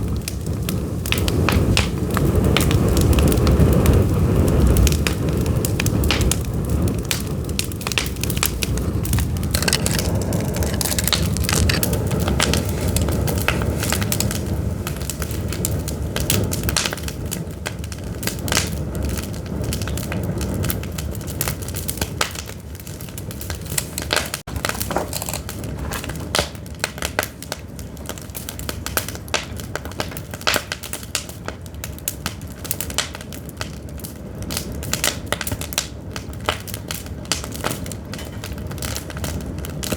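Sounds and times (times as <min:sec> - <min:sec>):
firewood crackling and popping: 0:00.0 - 0:39.9
low fire rumble: 0:00.0 - 0:39.9.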